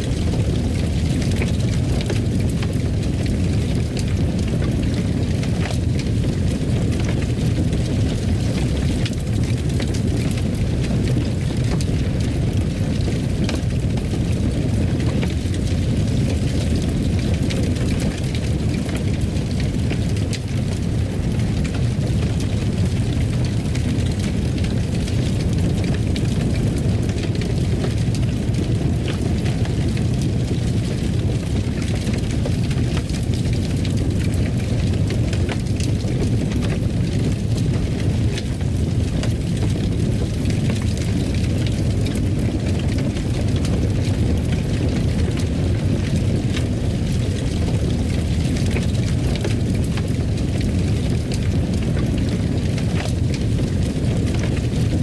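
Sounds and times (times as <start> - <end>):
fire crackling and popping: 0.0 - 55.0
wood fire roaring: 0.0 - 55.0.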